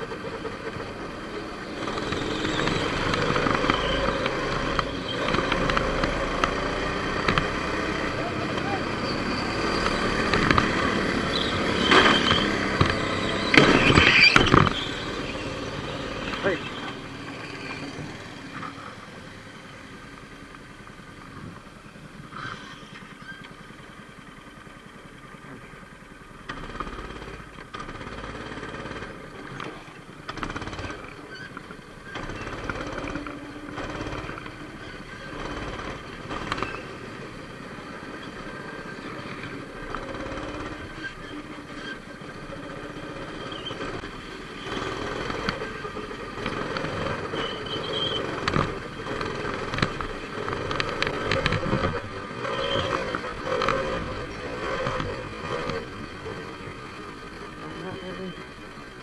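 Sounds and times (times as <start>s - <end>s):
motorcycle engines revving: 0.0s - 59.0s
sharp clicks: 2.9s - 7.7s, 47.8s - 52.1s.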